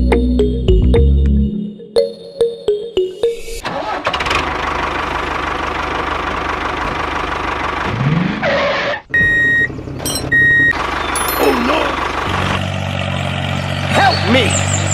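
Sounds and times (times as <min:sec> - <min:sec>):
engine whine: 0:02.8 - 0:14.9
tractor engine knocking rumble: 0:03.6 - 0:08.0, 0:09.1 - 0:13.6
loud steady beep: 0:09.2 - 0:11.4.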